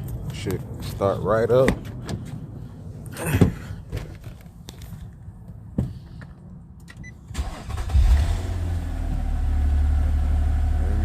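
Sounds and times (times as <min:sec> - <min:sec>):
car engine starting and idling: 0:06.9 - 0:11.0.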